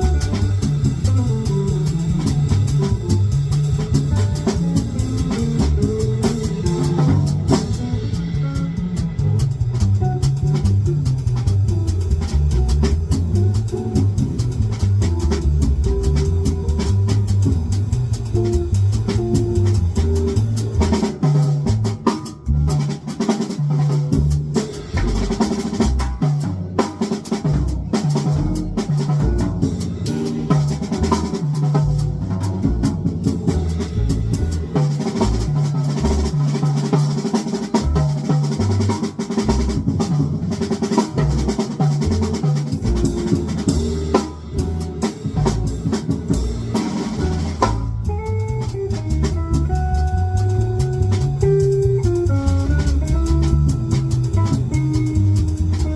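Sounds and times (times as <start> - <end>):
drum kit playing busy beat: 0.0 - 55.9
low bass notes: 0.0 - 55.9.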